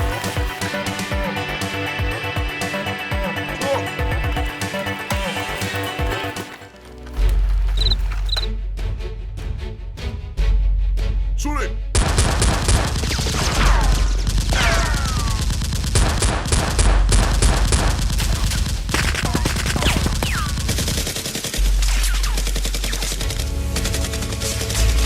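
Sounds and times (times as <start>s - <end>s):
music with heavy bass: 0.0s - 6.6s
automatic gunfire: 12.0s - 24.2s.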